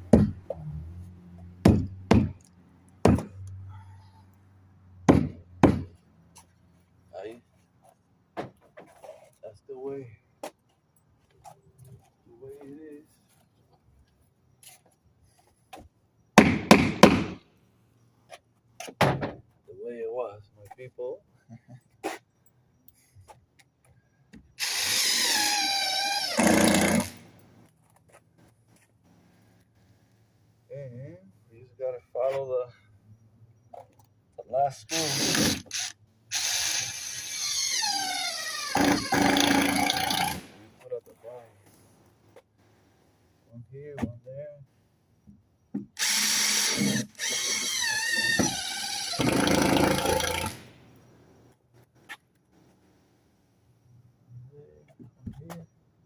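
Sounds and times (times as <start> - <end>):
power drill driving screw: 24.6 - 27.2, 34.9 - 40.5, 46.0 - 50.6.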